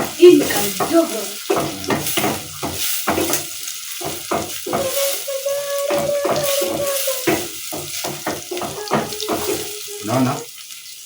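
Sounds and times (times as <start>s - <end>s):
onions frying in oil: 0.0s - 11.0s
wooden stick scraping pot: 4.7s - 7.6s.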